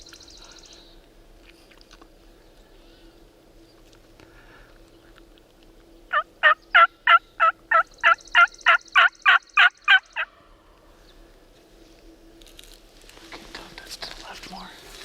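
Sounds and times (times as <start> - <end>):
turkey call yelps: 6.1 - 10.3.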